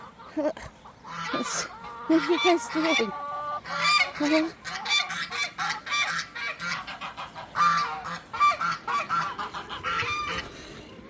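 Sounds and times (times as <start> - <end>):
geese honking: 0.0 - 10.6.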